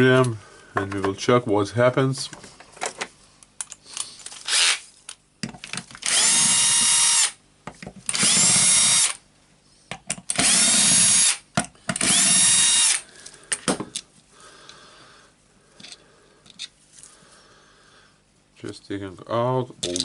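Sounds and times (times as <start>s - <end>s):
electric drill whining: 4.4s - 4.8s, 6.0s - 7.4s, 8.1s - 9.2s, 10.3s - 11.4s, 12.0s - 13.0s.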